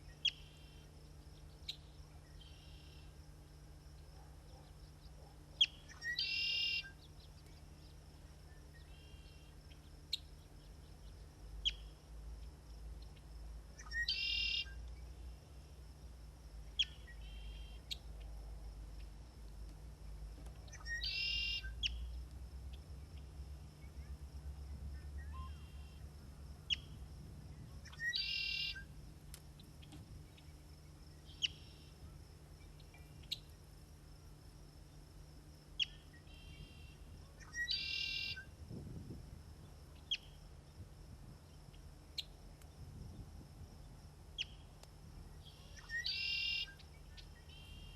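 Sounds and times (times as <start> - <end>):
songbird phrase: 4.4 - 12.0, 13.1 - 15.4, 16.7 - 18.3, 20.1 - 28.9, 35.8 - 38.5, 45.4 - 47.9.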